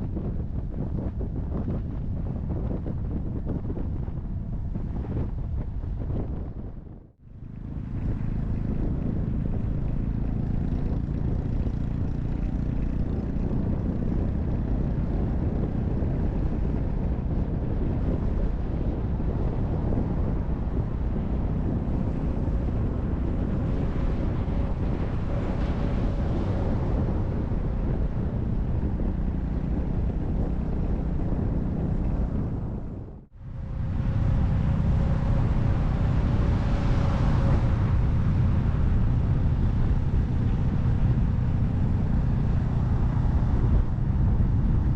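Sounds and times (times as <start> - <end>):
wind rushing over microphone: 0.0 - 44.9
motorcycle engine running: 7.3 - 44.9.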